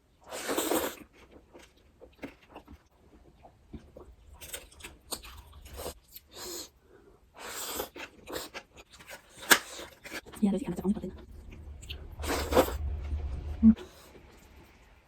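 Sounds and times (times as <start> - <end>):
short rush of noise: 11.0 - 15.0.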